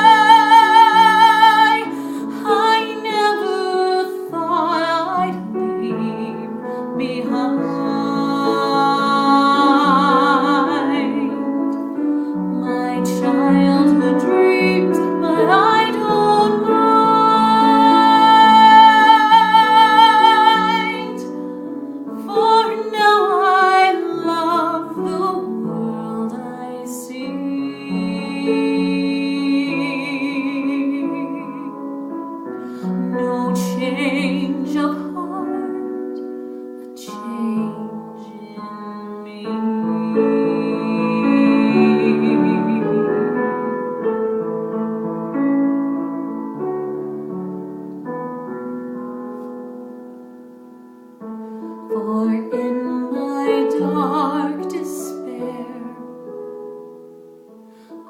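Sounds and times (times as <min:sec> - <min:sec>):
woman singing a ballad: 0:00.0 - 0:44.1, 0:51.6 - 0:58.0
piano accompaniment: 0:00.0 - 0:58.0.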